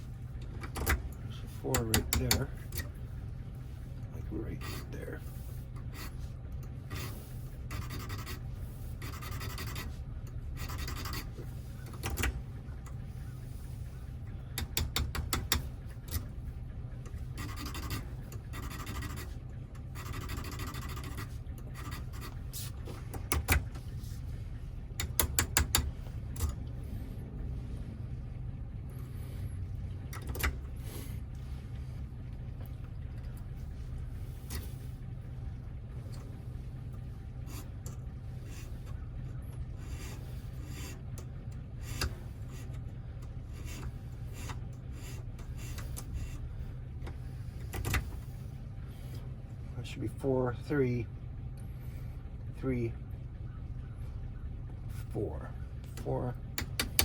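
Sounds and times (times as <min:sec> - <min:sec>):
steady low hum: 0:00.0 - 0:57.0
metal scraping and rasping: 0:06.8 - 0:10.0, 0:10.6 - 0:12.2, 0:17.3 - 0:22.8.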